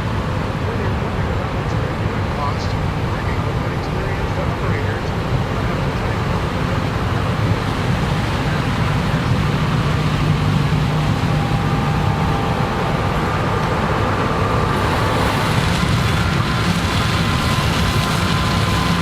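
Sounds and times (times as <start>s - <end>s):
heavy machinery engine drone: 0.0s - 19.0s.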